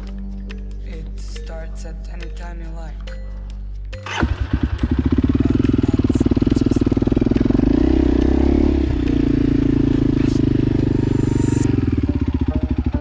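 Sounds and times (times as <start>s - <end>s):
motorcycle engine at high revs: 4.1s - 13.0s.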